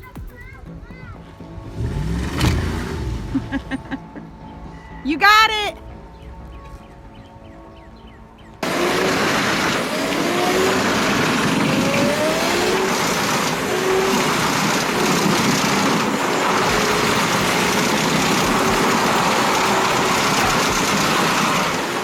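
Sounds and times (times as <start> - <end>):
heavy machinery engine running: 8.6 - 22.0.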